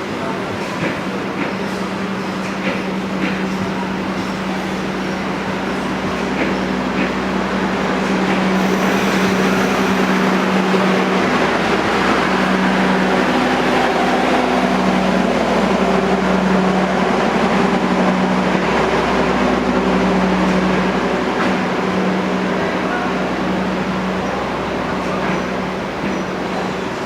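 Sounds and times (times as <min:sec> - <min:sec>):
train engine drone: 0:00.0 - 0:27.0
noisy rush: 0:08.2 - 0:15.9
steady tones: 0:08.4 - 0:13.5.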